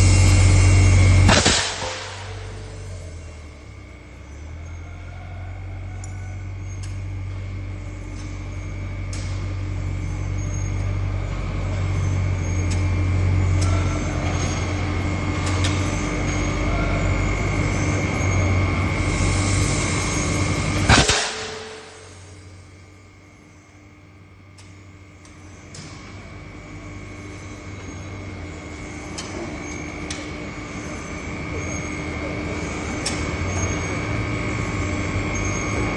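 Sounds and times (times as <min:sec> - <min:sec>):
sharp loud burst of noise: 0:00.0 - 0:03.6, 0:18.9 - 0:22.6
pneumatic hammer machine humming: 0:00.0 - 0:35.9.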